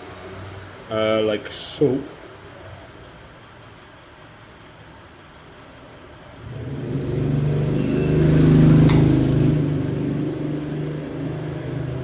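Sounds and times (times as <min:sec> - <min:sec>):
engine running: 0:06.3 - 0:12.0.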